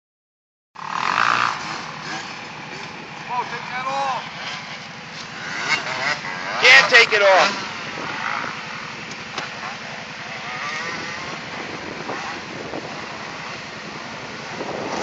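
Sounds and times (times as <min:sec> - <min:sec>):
quad bike engine running: 0:00.8 - 0:15.0.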